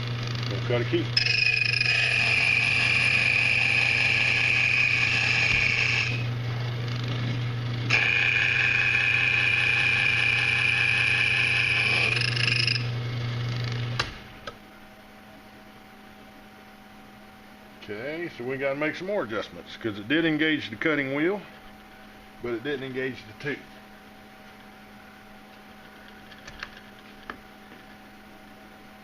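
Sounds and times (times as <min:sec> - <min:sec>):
cutting wheel whining on key: 0:01.2 - 0:06.3, 0:07.8 - 0:12.9.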